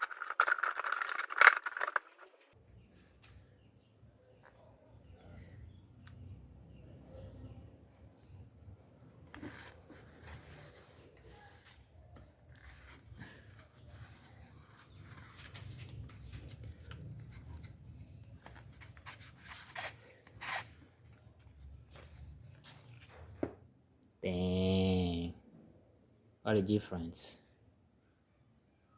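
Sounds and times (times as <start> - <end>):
plastic and filter scraping: 0.0 - 2.6.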